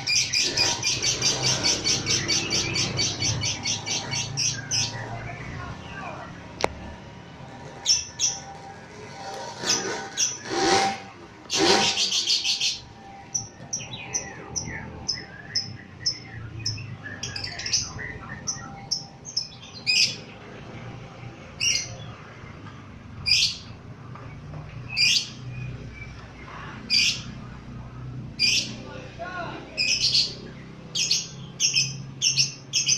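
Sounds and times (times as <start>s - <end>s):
lovebird chattering and chirping: 0.0s - 5.5s, 7.8s - 8.5s, 9.6s - 10.8s, 11.5s - 20.3s, 29.8s - 32.9s.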